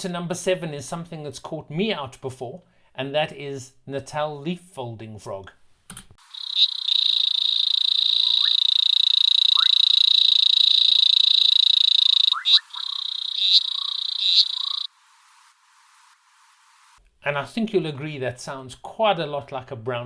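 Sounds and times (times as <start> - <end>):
frog high pulsed trill: 6.2 - 16.0.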